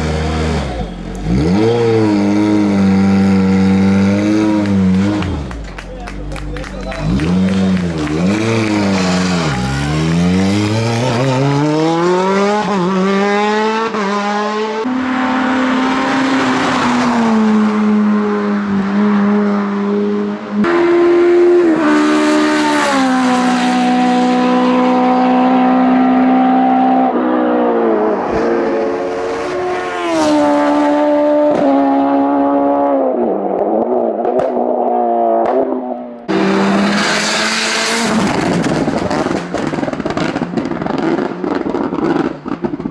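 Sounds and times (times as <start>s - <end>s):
race car engines at full throttle: 0.0s - 42.9s.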